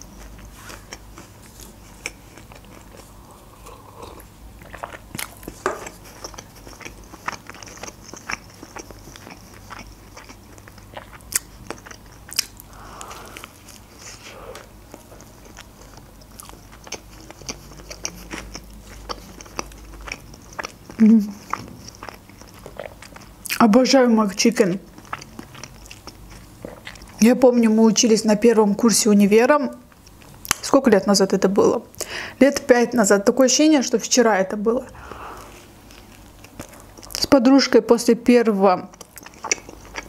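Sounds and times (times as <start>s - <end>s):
chewing: 0.0s - 27.6s, 35.0s - 37.4s, 38.8s - 40.0s.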